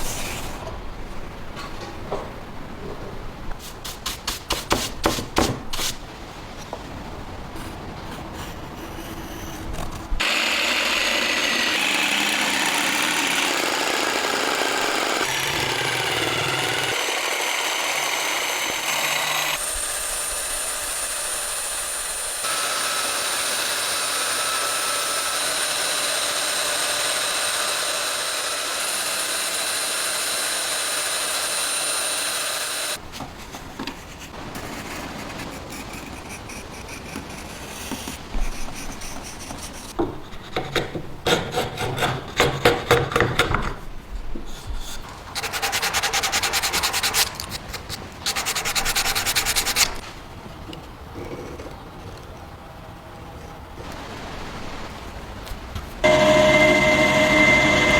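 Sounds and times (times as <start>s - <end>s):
power tool whining: 10.2s - 33.0s, 56.0s - 57.9s.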